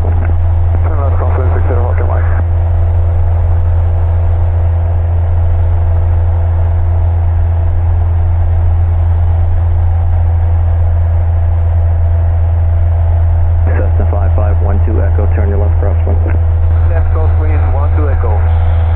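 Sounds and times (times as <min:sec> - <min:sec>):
airplane engine droning: 0:00.0 - 0:18.9.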